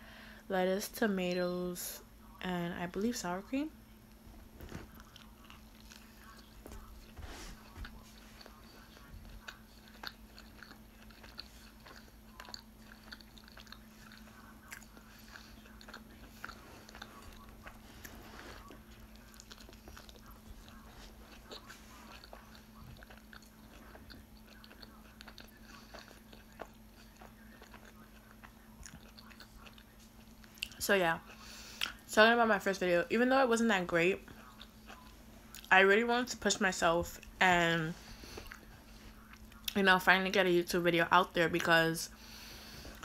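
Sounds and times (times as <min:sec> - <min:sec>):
faint low hum: 0:00.0 - 0:43.0
person chewing wetly: 0:04.6 - 0:32.0, 0:34.2 - 0:35.7, 0:38.0 - 0:39.8.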